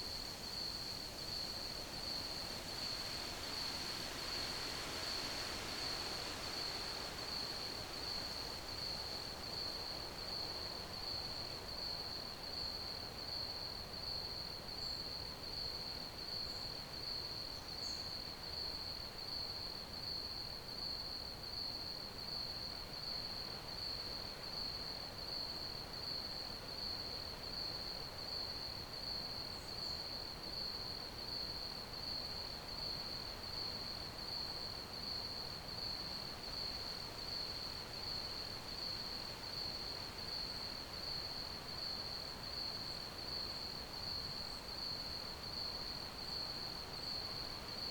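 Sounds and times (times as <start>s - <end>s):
faint hiss: 0.0s - 11.9s
crickets chirping: 20.0s - 47.9s.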